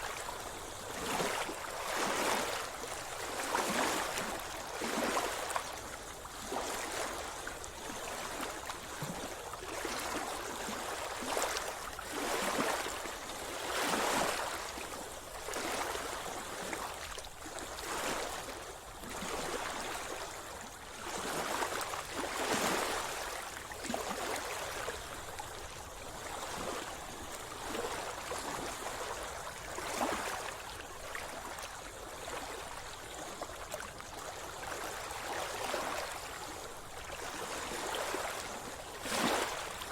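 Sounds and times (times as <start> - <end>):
sea water splashing: 34.8 - 39.9.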